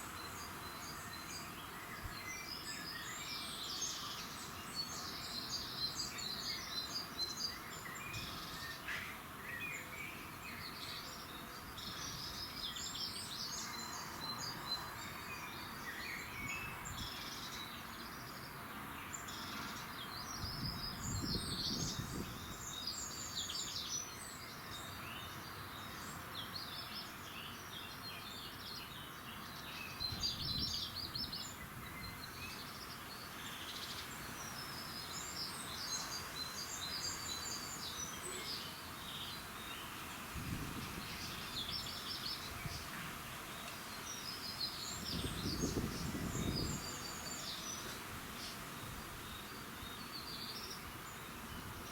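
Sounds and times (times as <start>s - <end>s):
songbirds chirping and trilling: 0.0s - 51.9s
steady background hiss: 0.0s - 51.9s.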